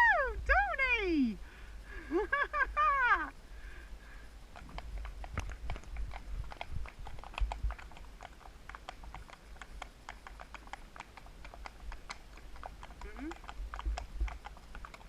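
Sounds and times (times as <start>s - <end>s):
low steady rumble: 0.0s - 15.0s
horse bit and tack clinking: 4.5s - 15.0s.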